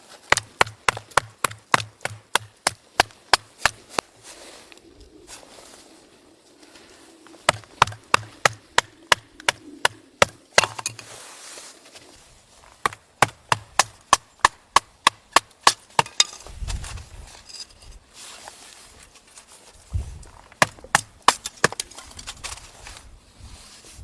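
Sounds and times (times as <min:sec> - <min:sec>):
wood chopping strikes: 0:00.2 - 0:04.1, 0:07.4 - 0:11.1, 0:12.6 - 0:16.9, 0:20.4 - 0:22.6.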